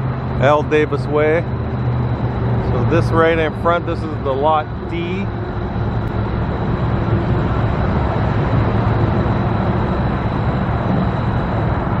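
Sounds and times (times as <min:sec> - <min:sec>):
low rumble of vehicle noise: 0:00.0 - 0:12.0.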